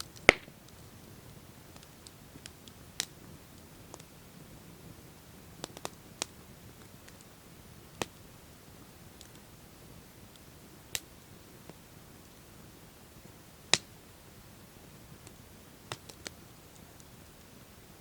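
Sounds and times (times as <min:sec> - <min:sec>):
campfire pops and snaps: 0:00.0 - 0:04.1, 0:05.6 - 0:08.3, 0:09.1 - 0:09.5, 0:10.3 - 0:11.8, 0:13.7 - 0:14.0, 0:15.1 - 0:17.4
low rush of burning fire: 0:00.0 - 0:18.0.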